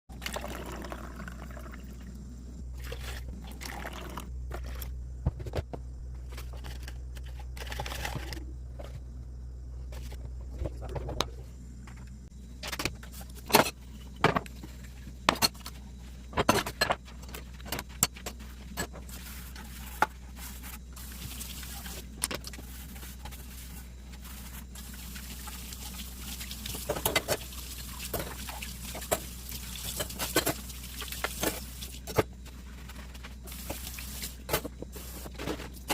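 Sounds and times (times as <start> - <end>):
steady low hum: 0.1 - 35.9.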